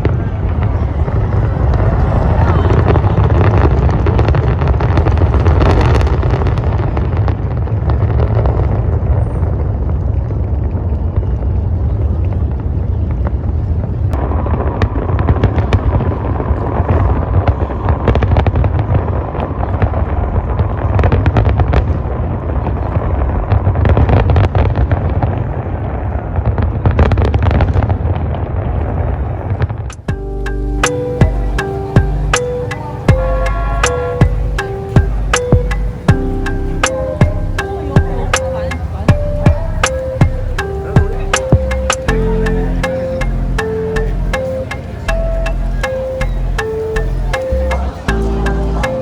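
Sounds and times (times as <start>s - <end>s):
fireworks bangs and crackles: 0.0s - 30.1s
fireworks rumble: 0.0s - 30.2s, 30.8s - 49.0s.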